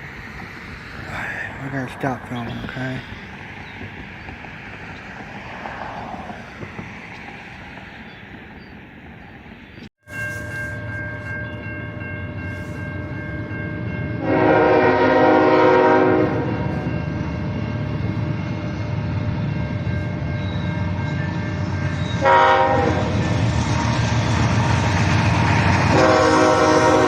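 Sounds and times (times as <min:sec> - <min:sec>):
train rumble: 0:00.0 - 0:27.0
locomotive horn blast: 0:14.2 - 0:16.9, 0:21.5 - 0:23.3, 0:25.8 - 0:27.0.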